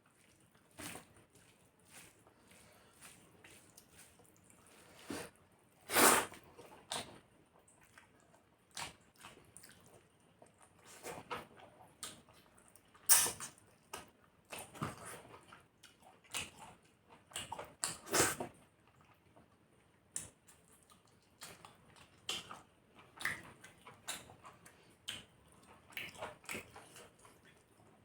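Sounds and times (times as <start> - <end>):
wet chewing and lip smacks: 20.2 - 27.9.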